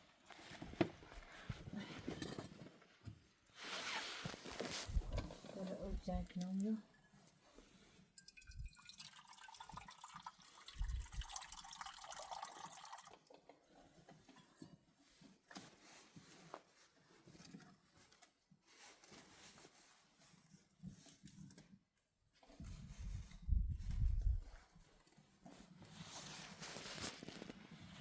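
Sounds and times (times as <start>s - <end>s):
faint splashing water: 8.1s - 13.4s
water dripping: 8.2s - 13.4s.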